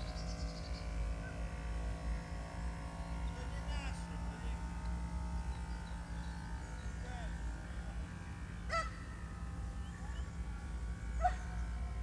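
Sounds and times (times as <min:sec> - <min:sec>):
bird calls: 0:00.0 - 0:01.4, 0:05.4 - 0:07.1, 0:08.6 - 0:09.1, 0:09.8 - 0:10.5, 0:11.1 - 0:11.8.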